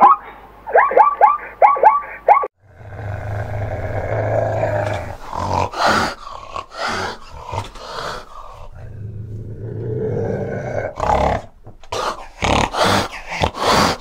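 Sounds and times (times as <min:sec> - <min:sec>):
cat growling: 0:02.6 - 0:14.0
harsh animal bursts: 0:02.7 - 0:08.8, 0:10.9 - 0:14.0.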